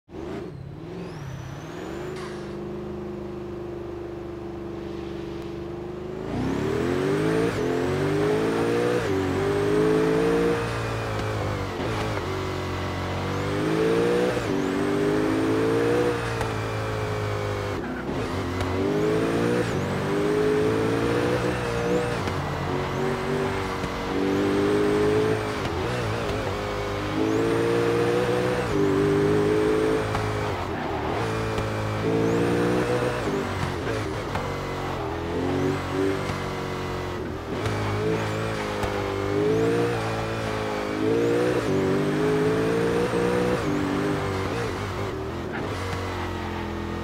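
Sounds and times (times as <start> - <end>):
car engine accelerating: 0.1 - 47.0.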